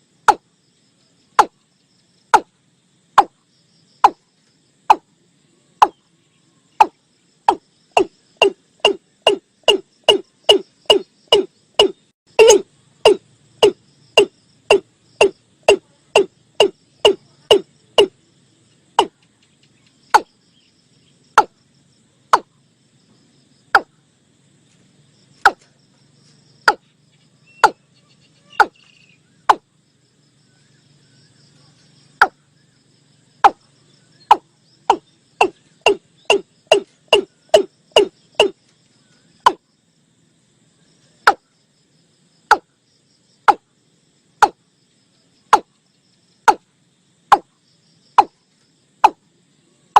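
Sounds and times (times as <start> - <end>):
faint crickets: 0.0 - 49.9
bird deep kok calls: 6.8 - 18.1, 27.5 - 29.6, 34.2 - 38.6.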